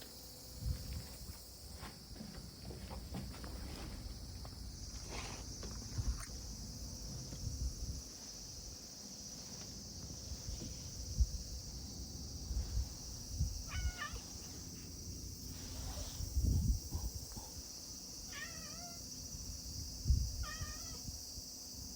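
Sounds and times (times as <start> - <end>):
low thumps and rumble: 2.2 - 8.1
cat meowing: 13.6 - 14.3, 18.3 - 19.1, 20.4 - 21.0.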